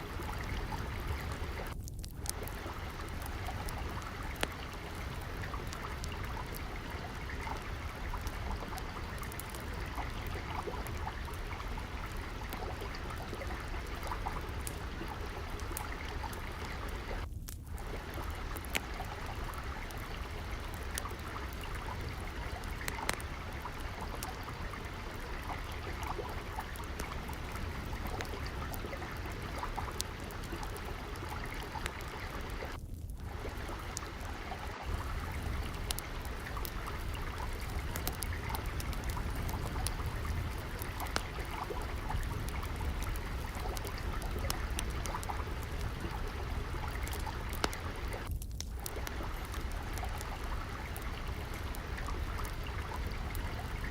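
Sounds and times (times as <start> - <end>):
water trickling: 0.0 - 53.9
wood fire crackling: 0.0 - 53.9.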